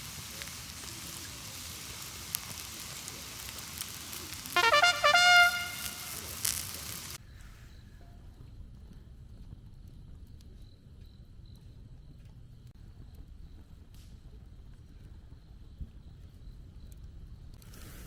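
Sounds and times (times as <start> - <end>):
wood fire crackling and hissing: 0.0 - 7.2, 16.9 - 18.0
horn-like tone swooping up: 4.6 - 6.2.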